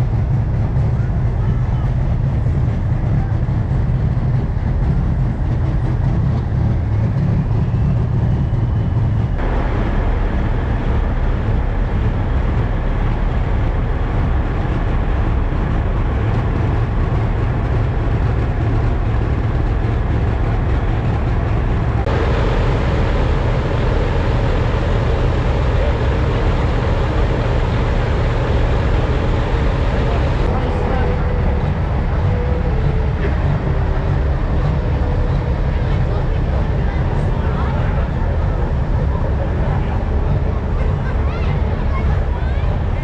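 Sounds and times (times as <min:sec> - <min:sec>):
diesel truck engines rumbling: 0:00.0 - 0:43.0.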